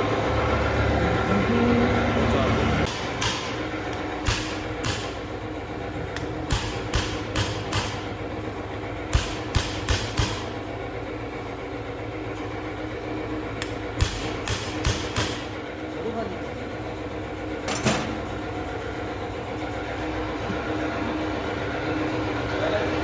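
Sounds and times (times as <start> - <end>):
steady mechanical hum: 0.0 - 23.0
sharp metallic knocks: 2.9 - 5.4, 6.2 - 8.2, 9.1 - 10.7, 13.6 - 15.6.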